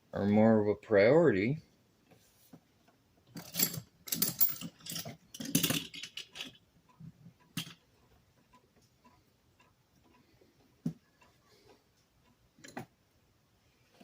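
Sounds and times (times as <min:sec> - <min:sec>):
faint ticking: 0:06.7 - 0:14.0.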